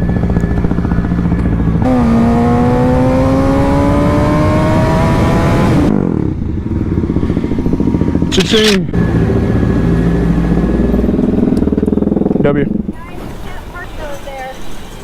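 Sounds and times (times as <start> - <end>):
wind rushing over microphone: 0.0 - 8.4
motorcycle engine revving: 0.0 - 13.2.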